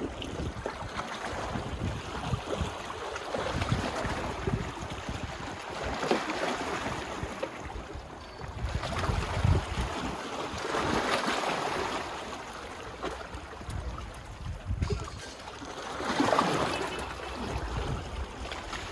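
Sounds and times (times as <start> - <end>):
wind rumble on microphone: 0.0 - 11.2, 13.3 - 15.6, 17.3 - 18.9
small waves washing onto beach: 0.0 - 18.9.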